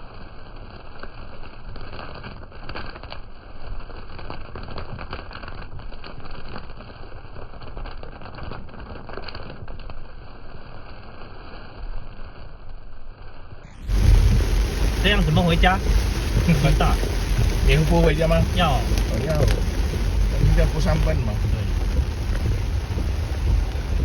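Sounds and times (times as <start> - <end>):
low rumble: 13.6 - 24.0
heavy rain: 13.7 - 24.0
raindrops clicking on surface: 13.7 - 24.0.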